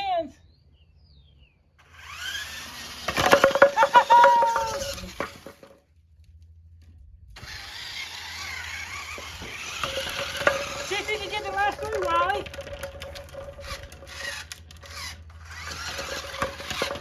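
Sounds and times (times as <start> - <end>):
hissing whir: 1.9 - 5.6, 7.4 - 17.0
toy bowling pins clattering: 2.3 - 5.8, 7.4 - 17.0.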